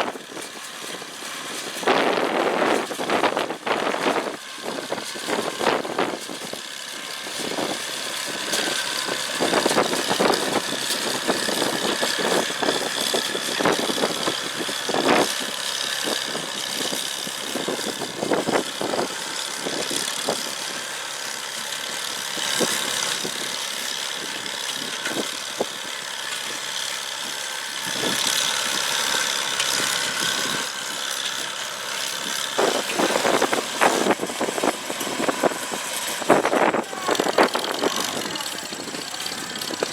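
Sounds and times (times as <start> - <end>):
engine running steadily: 0.0 - 39.9
hay baler clanking: 0.0 - 39.9.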